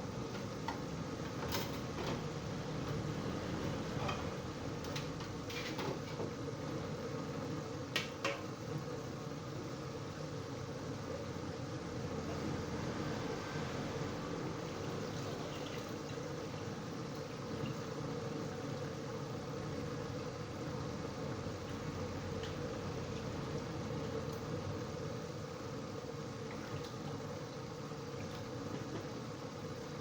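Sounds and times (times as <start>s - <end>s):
chicken sizzling in oil: 2.4s - 30.0s.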